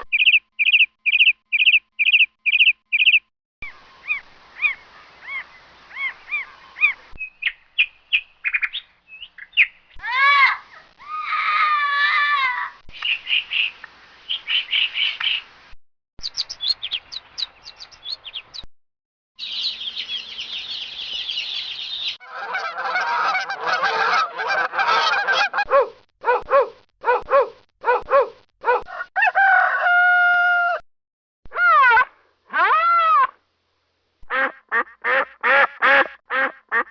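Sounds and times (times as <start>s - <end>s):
small birds chirping and whistling: 0.1s - 10.0s, 13.0s - 15.5s, 16.2s - 18.7s, 19.4s - 22.2s
geese honking: 22.2s - 25.6s
rooster crowing: 28.9s - 30.8s.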